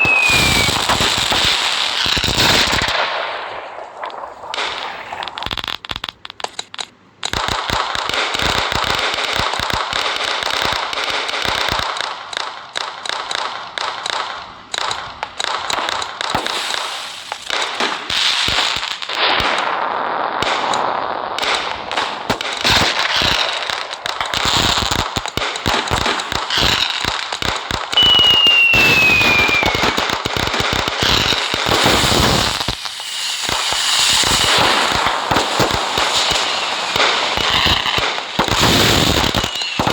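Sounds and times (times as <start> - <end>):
falling firework whistle: 0.0 - 3.0, 3.7 - 6.8, 27.8 - 39.9
firecrackers popping: 0.0 - 39.9.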